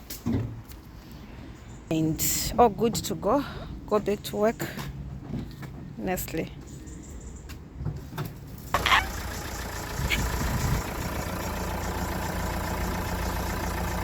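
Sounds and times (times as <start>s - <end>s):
car engine idling: 8.7s - 14.0s.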